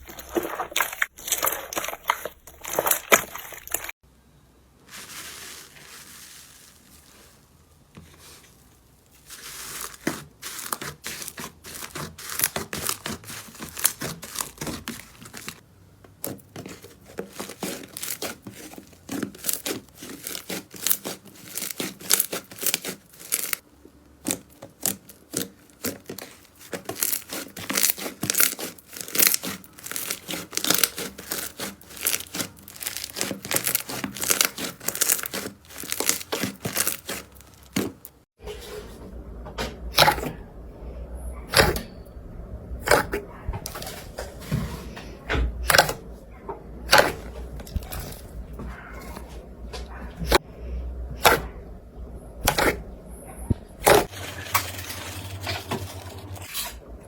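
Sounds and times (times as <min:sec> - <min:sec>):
slime crackling and popping: 0:09.0 - 0:15.6, 0:17.2 - 0:23.6, 0:24.3 - 0:38.2.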